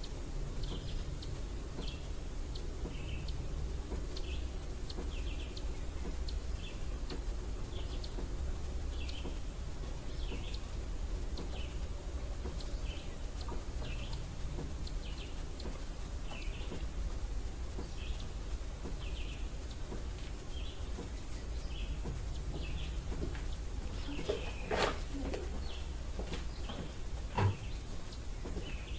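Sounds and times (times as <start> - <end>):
steady low rumble: 0.0 - 28.9
small bird chirping: 4.0 - 8.3, 8.9 - 10.8, 11.4 - 17.0, 17.8 - 28.9.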